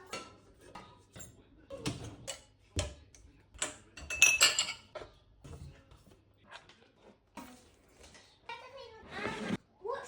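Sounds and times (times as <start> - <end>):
dishes and cutlery clinking: 0.0 - 8.3
ringing clatter of dishes: 3.6 - 5.0.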